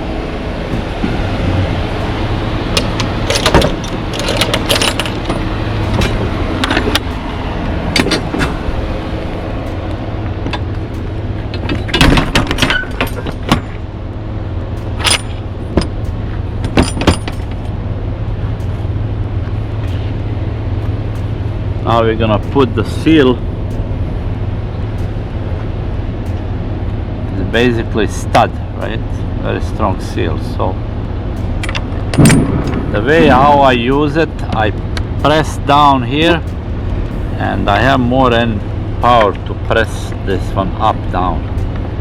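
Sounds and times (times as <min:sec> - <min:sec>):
idling truck hum: 0:00.0 - 0:42.0
metal clanks and rattles: 0:02.0 - 0:24.1, 0:31.3 - 0:42.0.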